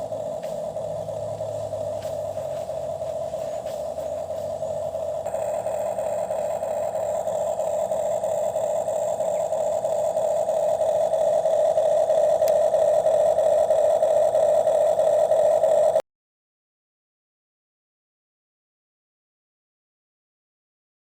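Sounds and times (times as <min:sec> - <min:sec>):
small electric motor whining: 0:00.0 - 0:16.0.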